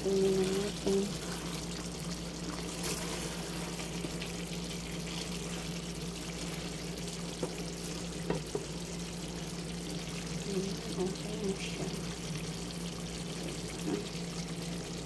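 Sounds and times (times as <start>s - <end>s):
chicken sizzling and bubbling in a pan: 0.0s - 15.0s
steady low hum: 0.0s - 15.0s
wooden spatula tapping a pan: 7.4s - 7.6s, 8.2s - 8.7s.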